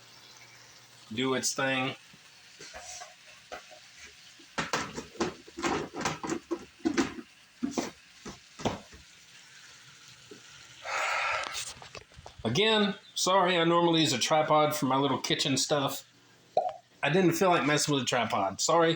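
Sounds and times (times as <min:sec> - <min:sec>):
food sizzling in a skillet: 0:00.0 - 0:12.4.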